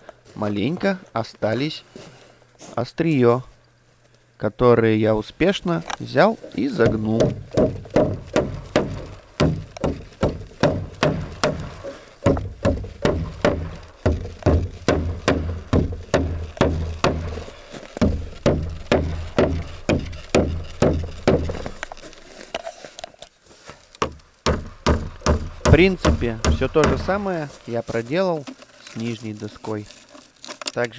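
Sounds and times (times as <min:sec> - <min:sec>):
hammer driving nails into wood: 0:06.5 - 0:22.4, 0:24.0 - 0:27.6
scattered knocks: 0:06.5 - 0:22.4, 0:24.0 - 0:27.6.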